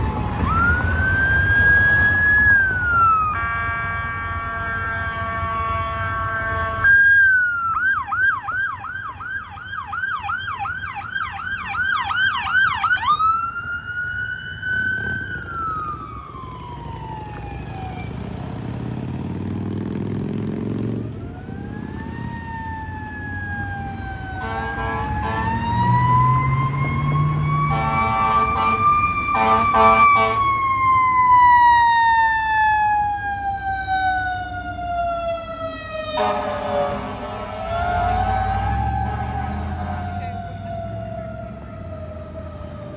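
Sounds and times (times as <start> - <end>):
diesel engine rumbling: 0.0 - 9.4, 10.4 - 42.9
electronic siren yelp and wail: 0.0 - 18.2, 21.1 - 42.9
horn blasts: 3.3 - 7.1, 24.4 - 26.0, 27.7 - 30.5, 36.1 - 40.5.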